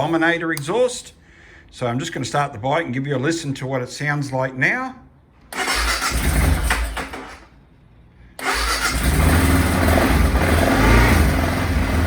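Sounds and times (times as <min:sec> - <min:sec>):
motorcycle engine cranking: 0:05.5 - 0:07.5, 0:08.4 - 0:11.4.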